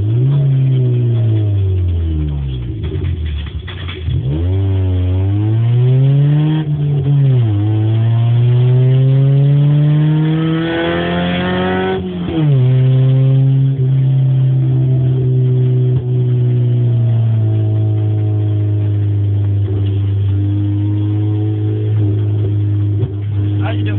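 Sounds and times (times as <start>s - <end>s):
car engine revving: 0.0s - 23.9s.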